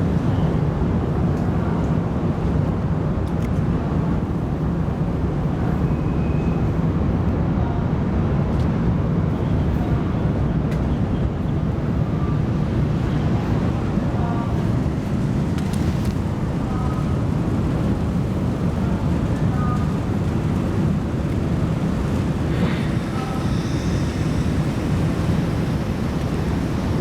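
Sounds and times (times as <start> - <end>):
low ship engine rumble: 0.0 - 27.0
wind buffeting microphone: 10.0 - 27.0.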